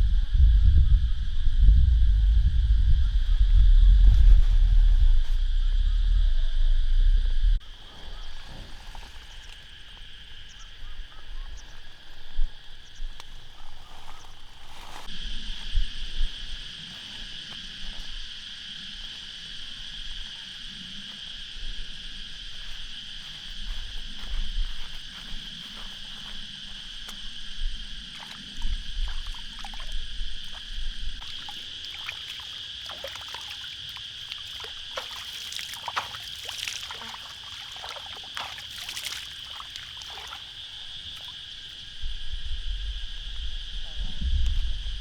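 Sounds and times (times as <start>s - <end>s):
low bumps: 0.0s - 7.6s, 41.9s - 45.0s
insects chirring: 0.0s - 45.0s.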